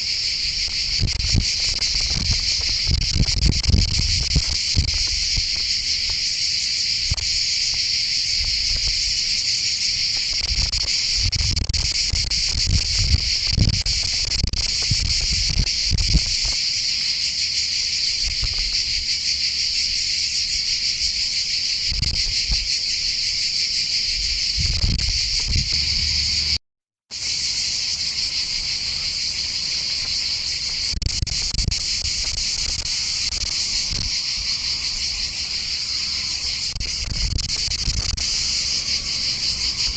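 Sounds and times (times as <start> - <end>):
wind buffeting microphone: 0.0 - 16.6, 24.1 - 26.6, 29.6 - 39.9
high-pitched insect chorus: 0.0 - 39.9.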